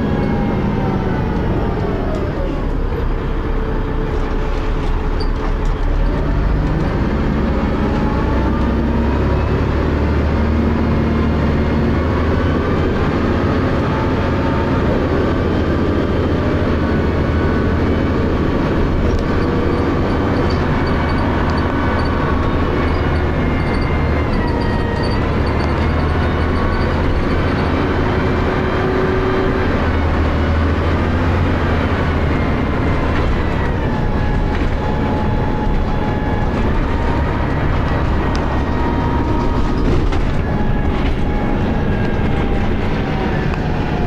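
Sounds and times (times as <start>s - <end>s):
bus engine rumble: 0.0s - 44.0s
gearbox whining tones: 17.4s - 44.0s.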